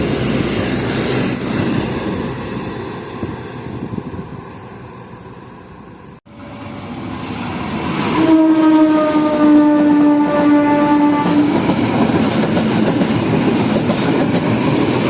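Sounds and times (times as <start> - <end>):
train rumbling: 0.0 - 15.0
locomotive horn: 8.2 - 11.6.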